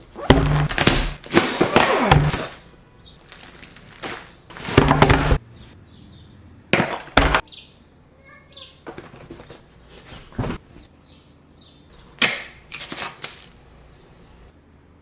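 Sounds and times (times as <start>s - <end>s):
packaging rustling: 0.1s - 5.4s.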